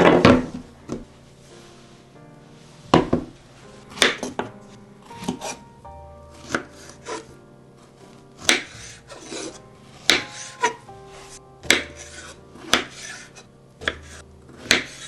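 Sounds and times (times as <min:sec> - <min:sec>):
soft background music: 0:00.0 - 0:15.0
knife chopping on cutting board: 0:03.9 - 0:04.5, 0:05.2 - 0:05.6, 0:06.4 - 0:07.3, 0:08.4 - 0:10.8, 0:11.6 - 0:15.0.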